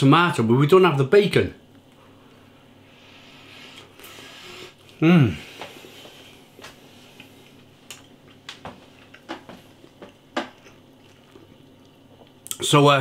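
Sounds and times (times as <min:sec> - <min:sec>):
person chewing: 0:07.0 - 0:12.6.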